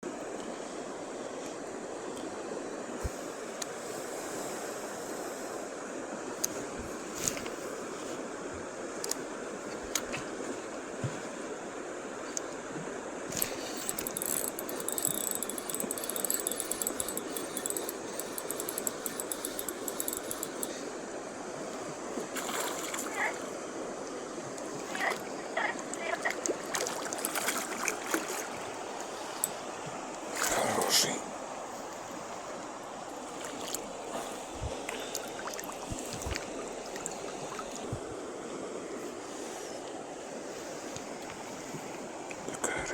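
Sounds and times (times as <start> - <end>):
rushing river water: 0.1 - 42.9
fishing reel clicking: 13.3 - 20.8.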